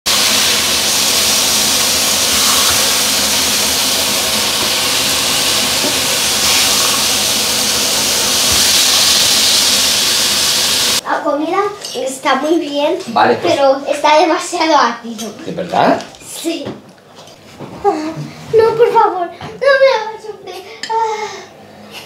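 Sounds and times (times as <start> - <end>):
fish sizzling in hot oil: 0.1 - 11.0.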